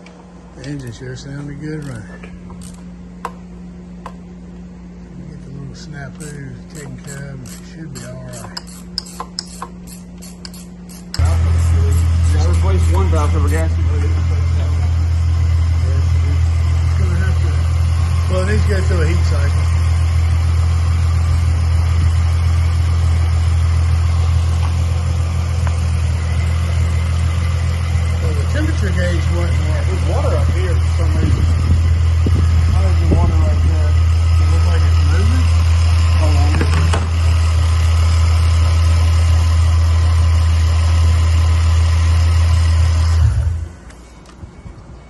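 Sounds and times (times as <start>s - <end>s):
car engine idling: 11.1s - 44.4s.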